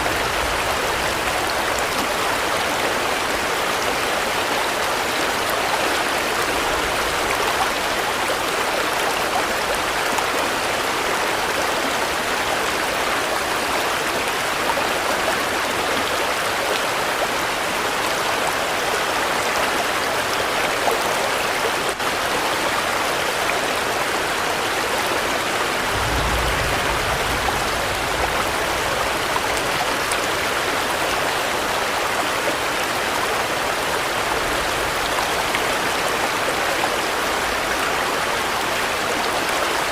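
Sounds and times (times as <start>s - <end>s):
steady rain falling: 0.0s - 39.9s
short low rumble: 25.9s - 29.1s.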